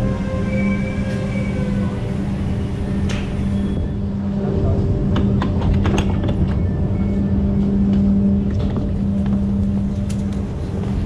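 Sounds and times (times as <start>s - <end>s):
train humming and rumbling: 0.0s - 11.0s
sharp clicks and knocks: 5.1s - 6.6s.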